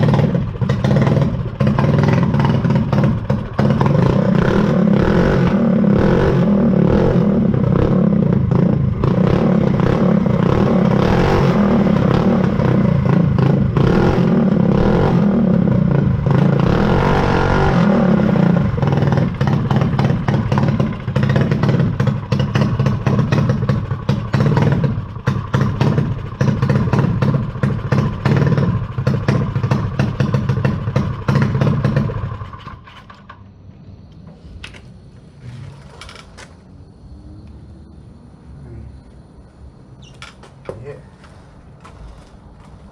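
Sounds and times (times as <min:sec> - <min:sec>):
small dirt bike engine running: 0:00.0 - 0:33.5.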